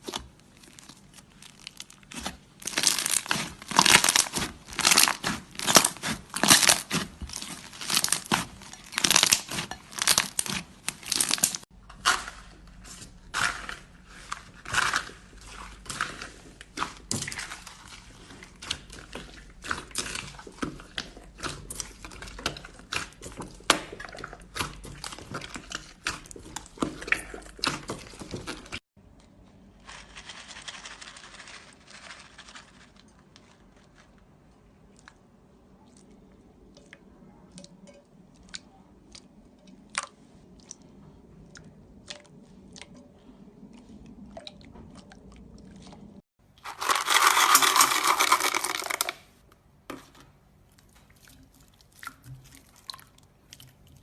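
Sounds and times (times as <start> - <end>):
slime crackling and popping: 0.0 - 12.3.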